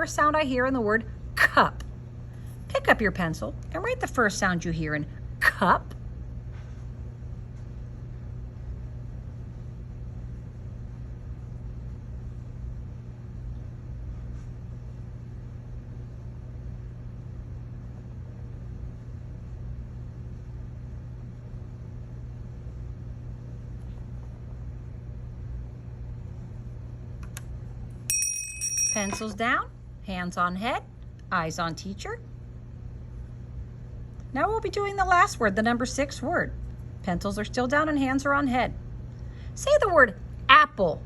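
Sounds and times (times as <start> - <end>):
low background hum: 0.0 - 41.0.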